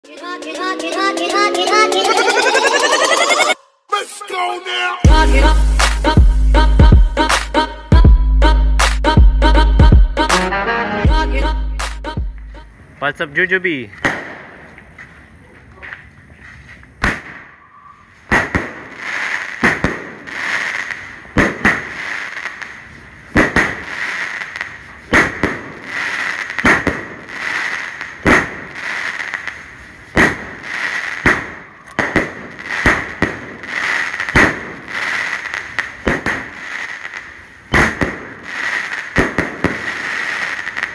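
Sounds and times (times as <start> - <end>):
firework bangs with hissing tails: 13.6 - 40.9
firework hiss: 18.2 - 40.9.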